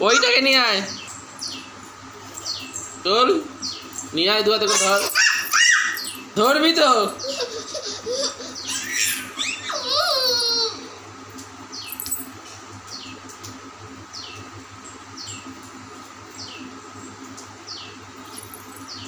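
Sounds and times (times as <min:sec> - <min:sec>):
bird calling: 0:00.0 - 0:01.7, 0:07.2 - 0:10.9
faint steady hum: 0:00.0 - 0:19.0.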